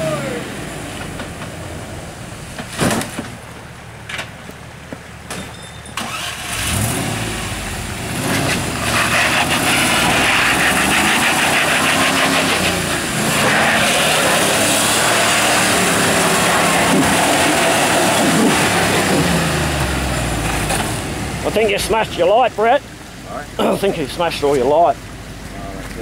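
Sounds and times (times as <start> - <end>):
car engine revving under load: 6.0 - 26.0.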